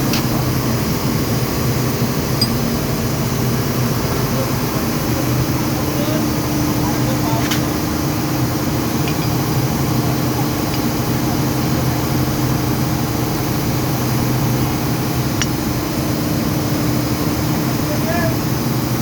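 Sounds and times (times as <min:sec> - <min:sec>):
machinery droning: 0:00.0 - 0:19.0
light metallic clicks: 0:02.4 - 0:02.7.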